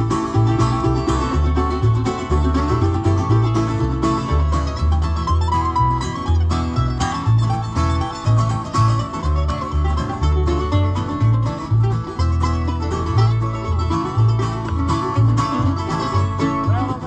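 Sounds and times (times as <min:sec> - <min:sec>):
banjo picking: 0:00.0 - 0:17.0
bass line: 0:00.0 - 0:17.0
guitar picking: 0:00.0 - 0:17.0.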